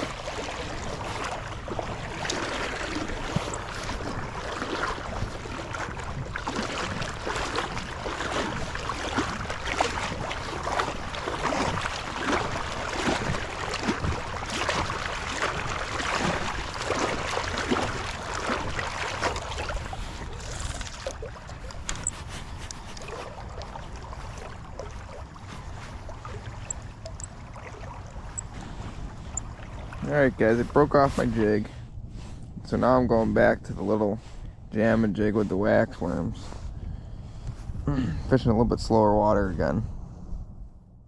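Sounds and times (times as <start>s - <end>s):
creek water rushing: 0.0s - 28.7s.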